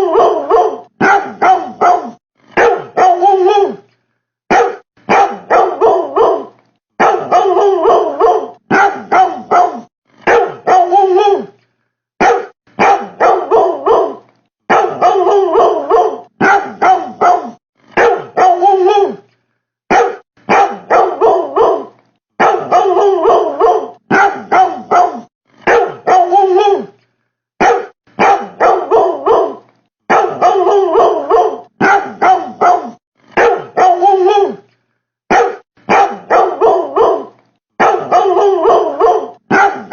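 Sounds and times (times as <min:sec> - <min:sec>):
dog barking: 0:00.0 - 0:03.8, 0:04.5 - 0:11.5, 0:12.2 - 0:19.2, 0:19.9 - 0:26.9, 0:27.6 - 0:34.6, 0:35.3 - 0:39.9.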